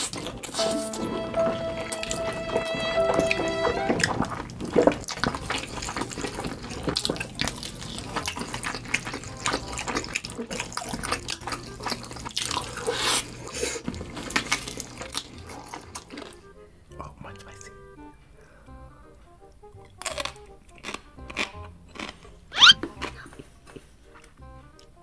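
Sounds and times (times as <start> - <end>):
chewing crunchy food: 0.0 - 0.6, 4.2 - 16.5, 19.4 - 25.0
wet mouth smacking: 19.8 - 23.4.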